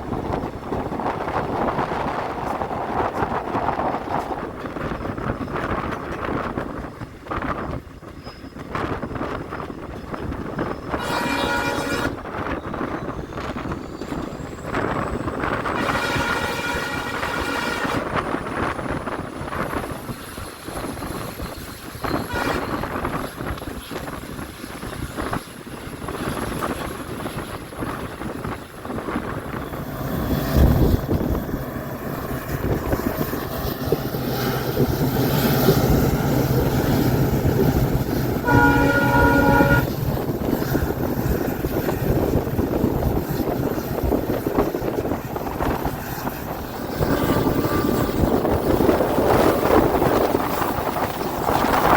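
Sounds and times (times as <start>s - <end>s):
train rumbling on track: 0.0s - 51.9s
locomotive horn: 10.9s - 12.3s, 15.6s - 18.1s, 22.3s - 22.8s, 38.3s - 40.2s, 47.0s - 48.2s.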